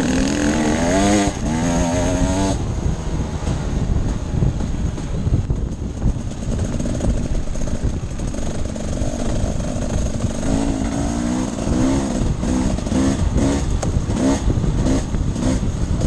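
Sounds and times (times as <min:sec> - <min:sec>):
off-road motorcycle engine revving: 0:00.0 - 0:16.0.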